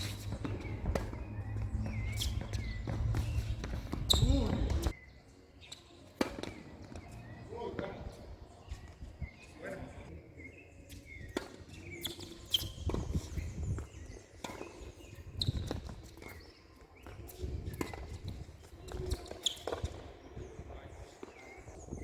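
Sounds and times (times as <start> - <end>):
tennis ball bouncing on court: 0.0 - 4.9, 6.2 - 7.2, 17.0 - 18.2, 18.9 - 20.0
tennis ball struck by rackets: 0.0 - 4.9, 6.2 - 7.1
footsteps on court: 0.0 - 5.0.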